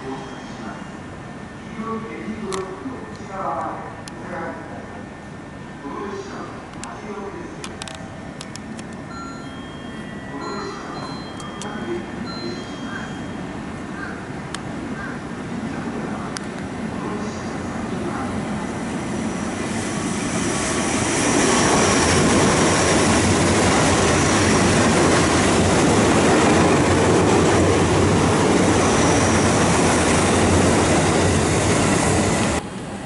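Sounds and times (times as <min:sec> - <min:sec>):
faint high whine: 0:00.0 - 0:00.9
train wheels rushing on rail: 0:10.4 - 0:33.0.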